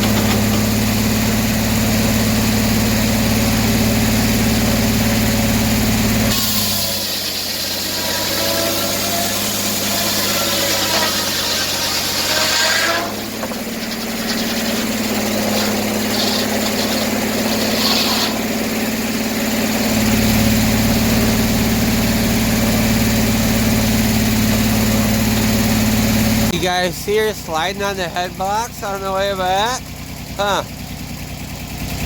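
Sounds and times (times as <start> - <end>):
circular sawmill running: 0.0 - 29.8.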